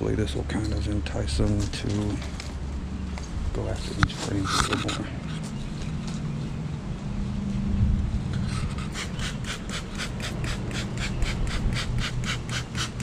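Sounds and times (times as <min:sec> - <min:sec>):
honey bees humming: 0:08.3 - 0:13.0
spray bottle squirting: 0:08.5 - 0:13.0.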